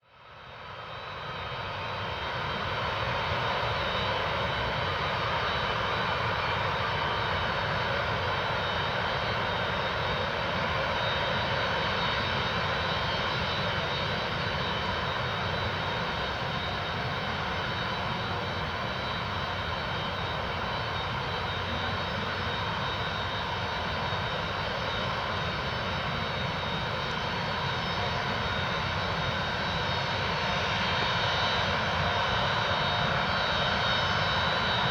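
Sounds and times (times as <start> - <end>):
jet engines rumbling with fan whine: 0.0 - 34.9.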